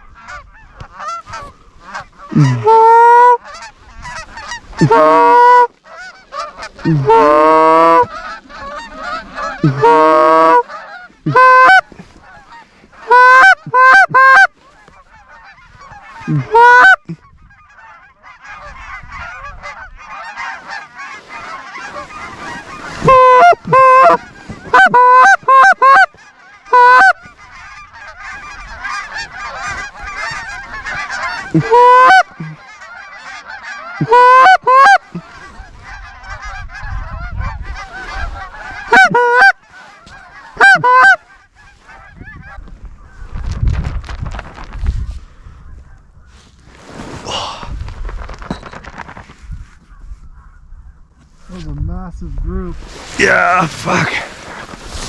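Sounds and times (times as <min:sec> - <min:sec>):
goose honking: 0:00.0 - 0:43.2
chorus of geese calling: 0:00.0 - 0:43.6, 0:44.3 - 0:55.0.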